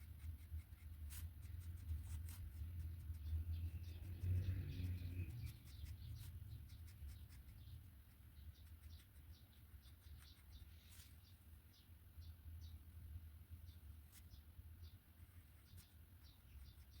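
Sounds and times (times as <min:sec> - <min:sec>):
pen scratching on paper: 0:00.0 - 0:03.2.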